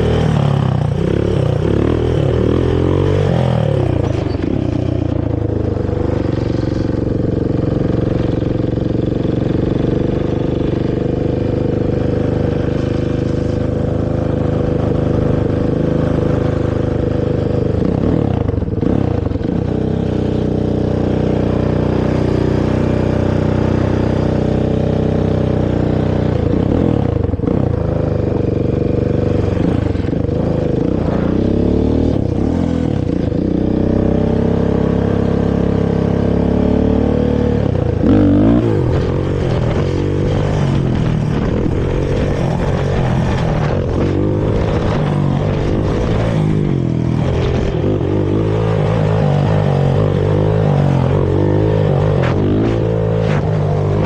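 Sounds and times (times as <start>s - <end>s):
quad engine running: 0.0s - 54.0s.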